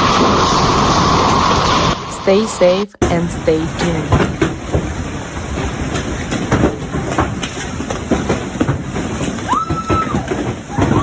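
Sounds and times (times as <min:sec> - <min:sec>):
hailstones rattling: 0:04.0 - 0:11.0.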